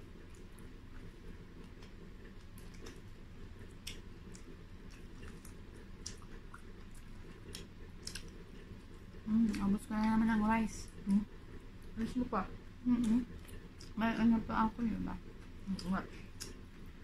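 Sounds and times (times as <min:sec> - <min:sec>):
faint low hum: 0:00.0 - 0:17.0
people chewing: 0:00.0 - 0:17.0.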